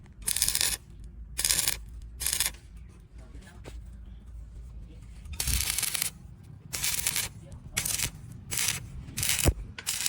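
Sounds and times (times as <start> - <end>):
arc welder crackling: 0.0 - 2.6, 5.3 - 10.0.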